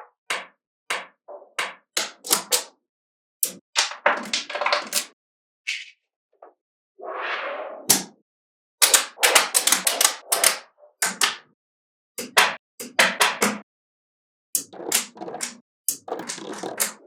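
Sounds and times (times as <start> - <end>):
magnetic balls clicking: 14.6 - 17.0.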